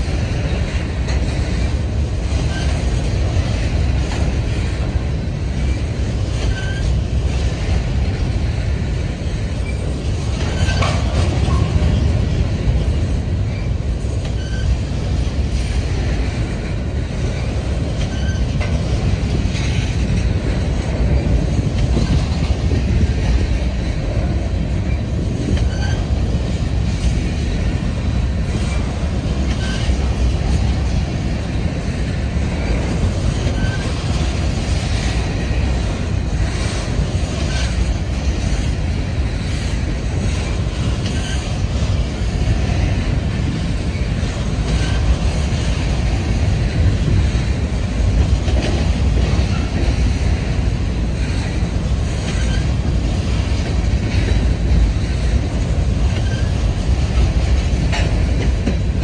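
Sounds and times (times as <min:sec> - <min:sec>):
rail clicks: 0:00.0 - 0:59.0
steel wheels rumbling on rail: 0:00.0 - 0:59.0
faint wheel squeals: 0:06.4 - 0:07.1, 0:13.5 - 0:14.9, 0:17.4 - 0:18.6, 0:24.8 - 0:26.2, 0:29.5 - 0:30.1, 0:33.4 - 0:34.1, 0:41.0 - 0:41.5.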